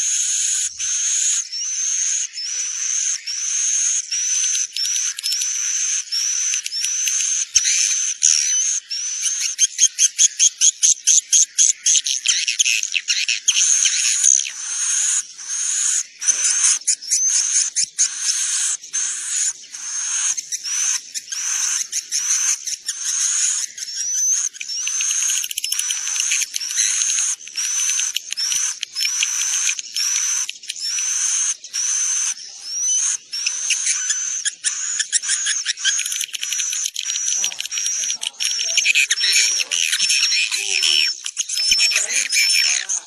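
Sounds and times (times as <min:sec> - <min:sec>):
fast clipped chirps: 0:16.2 - 0:43.0
swiftlets chirping: 0:33.4 - 0:43.0.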